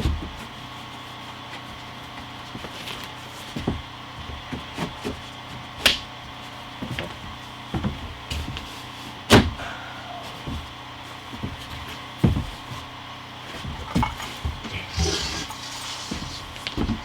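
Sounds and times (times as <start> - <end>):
steady low hum: 5.8 - 17.0
wooden knocks and thumps: 13.6 - 15.5.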